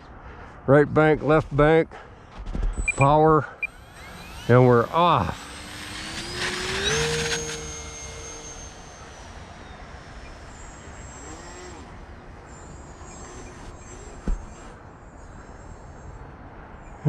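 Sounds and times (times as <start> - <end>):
model plane motor whining: 2.8 - 16.0.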